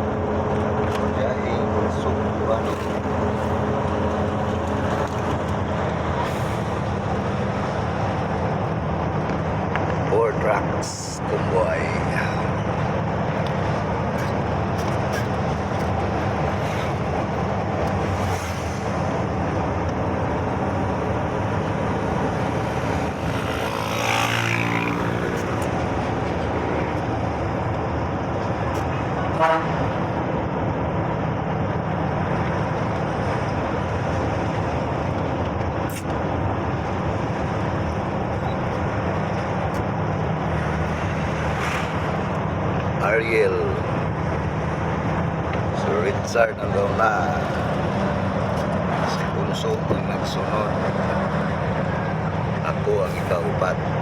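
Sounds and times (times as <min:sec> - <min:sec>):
truck engine and tyres on road: 0:00.0 - 0:54.0
vehicle horn tooting: 0:29.3 - 0:29.8.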